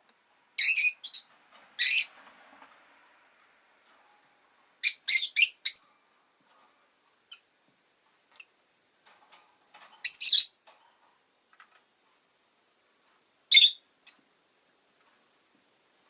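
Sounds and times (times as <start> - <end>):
rustles: 0.0 - 4.9, 5.8 - 16.0
lovebird chirping: 0.6 - 2.1, 4.8 - 6.0, 10.0 - 10.6, 13.5 - 13.9.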